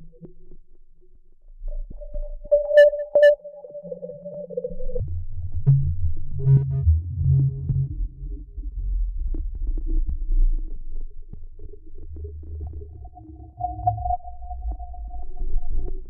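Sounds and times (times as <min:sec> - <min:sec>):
overdriven sub-bass drone pulsing: 0:05.0 - 0:10.7.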